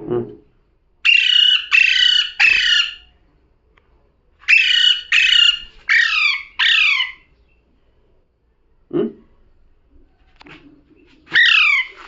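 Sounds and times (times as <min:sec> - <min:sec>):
parrot squawking: 0:01.0 - 0:03.1, 0:04.5 - 0:07.3, 0:11.3 - 0:12.0.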